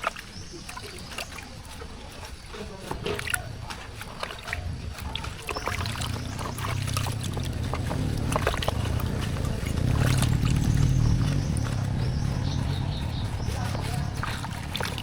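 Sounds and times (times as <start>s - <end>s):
engine humming: 4.5s - 15.0s.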